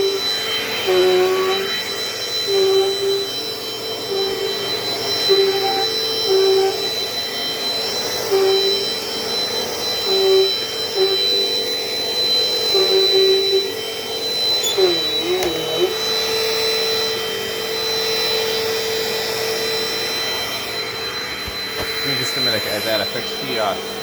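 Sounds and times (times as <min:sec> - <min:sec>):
brief wavering tone: 0:00.0 - 0:24.0
vacuum cleaner running: 0:00.0 - 0:24.0
short lower tones: 0:12.4 - 0:18.4.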